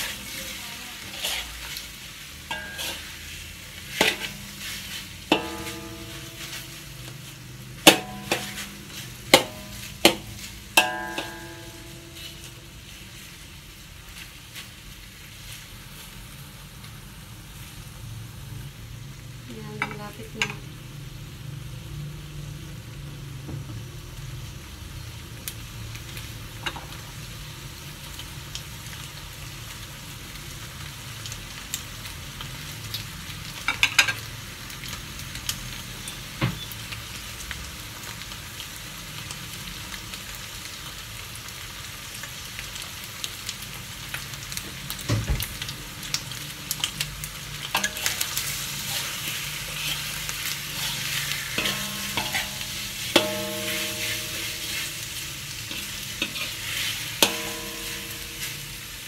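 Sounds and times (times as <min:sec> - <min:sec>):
meat sizzling in a wok: 0:00.0 - 0:59.0
metal spatula clicking on pan: 0:47.6 - 0:48.3, 0:51.6 - 0:54.4.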